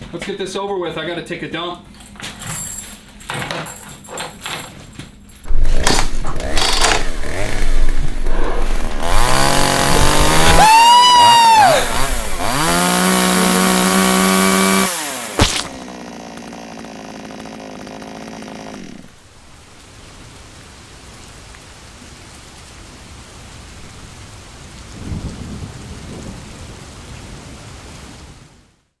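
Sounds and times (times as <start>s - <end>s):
low rumbles: 5.4s - 14.2s
chainsaw running: 5.5s - 19.4s
sharp knock: 15.4s - 15.8s
rain-like hiss: 19.1s - 29.0s.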